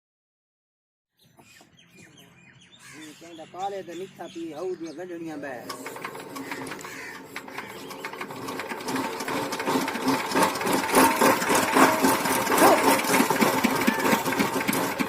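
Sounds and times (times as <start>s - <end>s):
diesel engine knocking: 5.9s - 15.0s.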